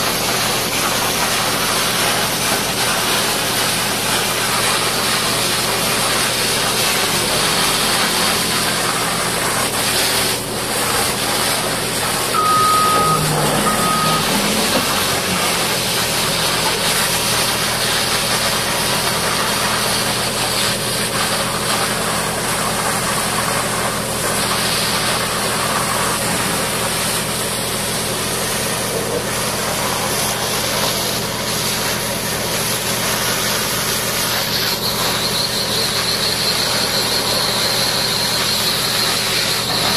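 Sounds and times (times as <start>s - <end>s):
diesel engine running: 0.0s - 39.9s
high-pressure water spray hiss: 0.0s - 39.9s
short beeps: 12.4s - 15.0s.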